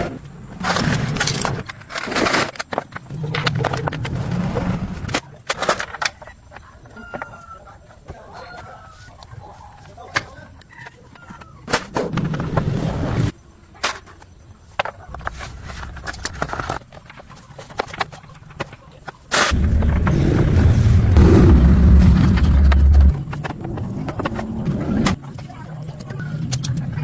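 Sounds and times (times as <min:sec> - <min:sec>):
low rumbling: 0:19.5 - 0:25.2.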